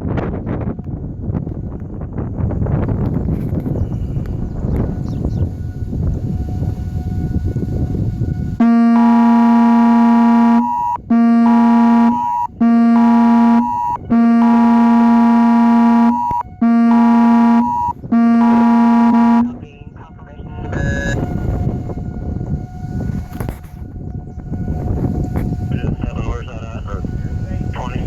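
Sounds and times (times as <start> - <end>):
wind rumbling on microphone: 0.0 - 28.0
loud horn blasts: 3.0 - 28.0.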